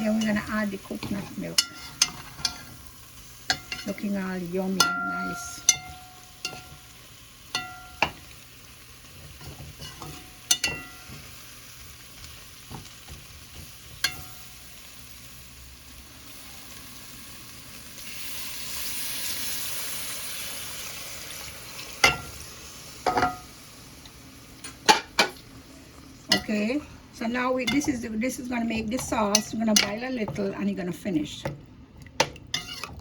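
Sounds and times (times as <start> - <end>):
chicken sizzling in a pot: 0.0 - 30.4
spoon clinking against pot: 1.0 - 2.7, 3.5 - 4.0, 4.8 - 6.9, 7.5 - 8.3, 9.4 - 11.3, 14.0 - 14.5, 22.0 - 22.3, 28.8 - 30.4.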